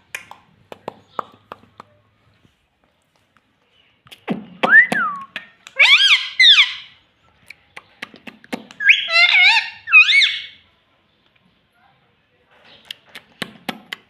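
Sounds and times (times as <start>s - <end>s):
parrot squawking: 5.7s - 7.0s, 8.8s - 10.6s.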